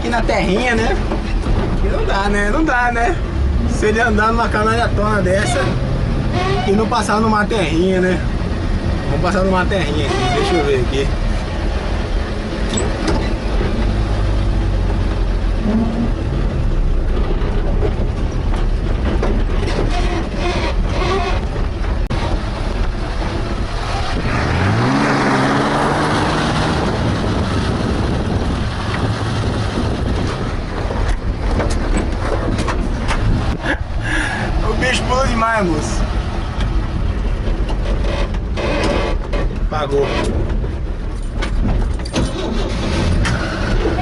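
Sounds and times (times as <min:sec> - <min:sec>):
truck knocking and rattling: 0:00.0 - 0:44.0
pickup truck engine revving: 0:20.2 - 0:34.9.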